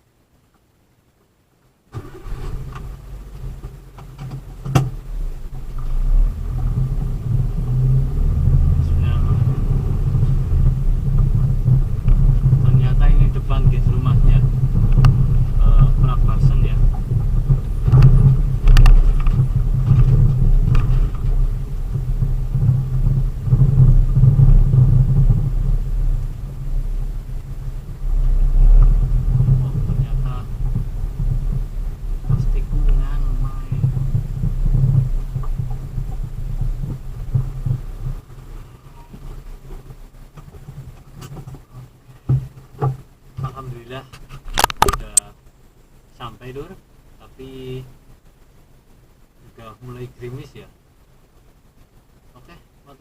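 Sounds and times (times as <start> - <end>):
vehicle engine humming: 1.7 - 53.0
sharp click: 44.4 - 45.3.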